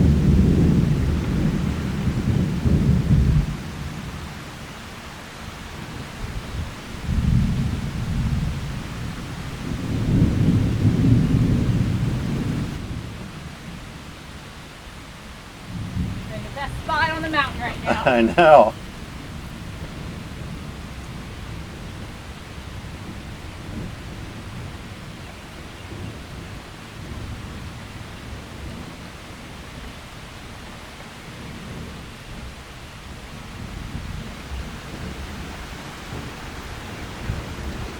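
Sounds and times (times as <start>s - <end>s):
low rumble of thunder: 0.0s - 4.4s, 5.6s - 14.1s, 15.6s - 16.9s, 18.8s - 37.9s
rain hissing: 0.0s - 37.9s
thunder rumbling: 5.8s - 13.2s, 15.7s - 22.1s.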